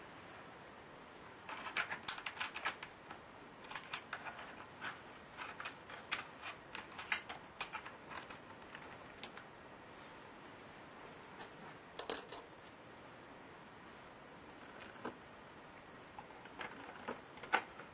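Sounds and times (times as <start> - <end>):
laptop keyboard typing: 1.5 - 9.5, 16.2 - 17.9.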